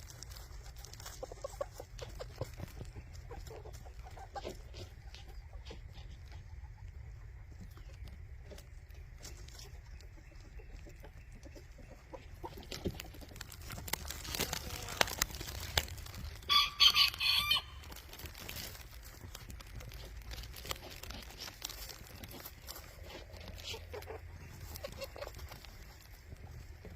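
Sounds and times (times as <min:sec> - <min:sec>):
chickens clucking: 0:00.0 - 0:26.9
rooster crowing: 0:16.5 - 0:17.8.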